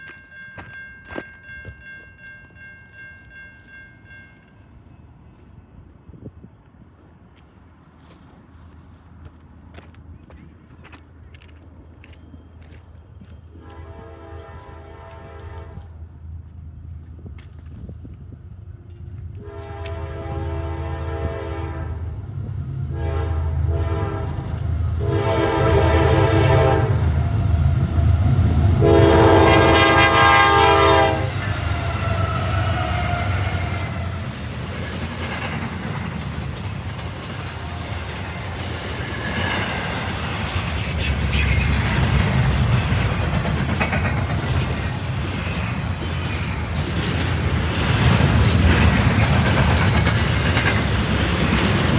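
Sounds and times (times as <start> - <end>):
train horn blasts: 13.5 - 16.0, 19.4 - 22.2, 22.9 - 27.3, 28.7 - 34.3
train wheels clattering on rails: 31.0 - 51.9.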